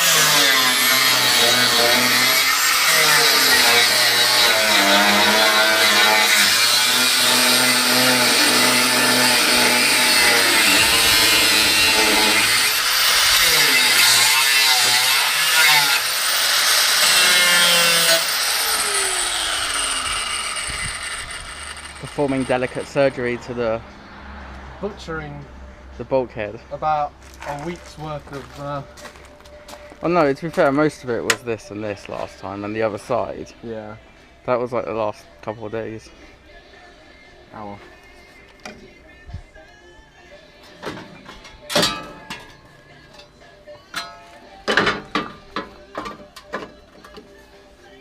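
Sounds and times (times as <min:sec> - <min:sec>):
power tool cutting into steel: 0:00.0 - 0:23.2.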